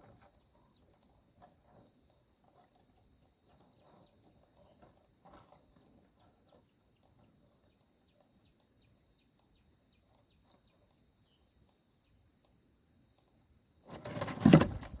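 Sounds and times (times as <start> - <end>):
faint ticks and scratches: 0.0 - 15.0
insects chirring: 13.6 - 15.0.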